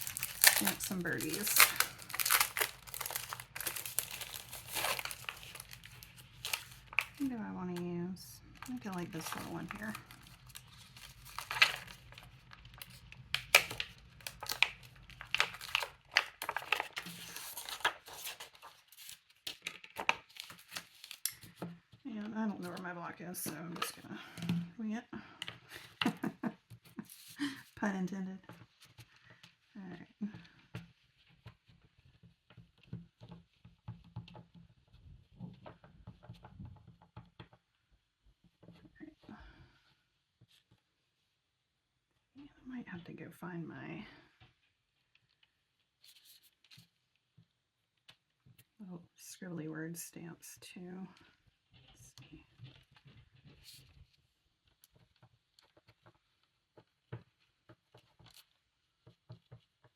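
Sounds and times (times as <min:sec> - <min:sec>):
paper rustling and crinkling: 0:00.0 - 0:07.4, 0:08.5 - 0:21.9, 0:25.5 - 0:27.8, 0:45.2 - 0:47.0.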